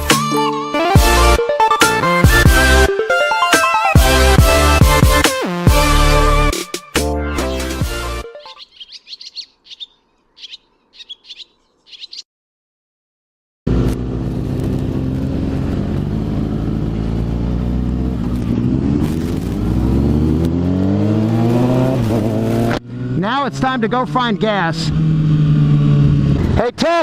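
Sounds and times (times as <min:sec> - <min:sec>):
birds chirping: 0:07.0 - 0:12.3
motorcycle engine running: 0:13.7 - 0:24.2.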